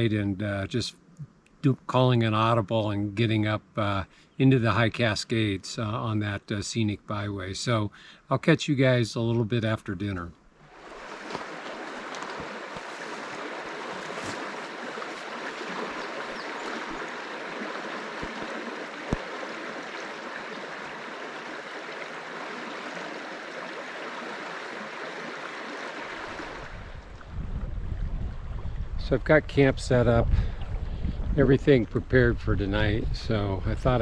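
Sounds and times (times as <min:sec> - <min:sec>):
stream flowing: 0:10.4 - 0:28.8.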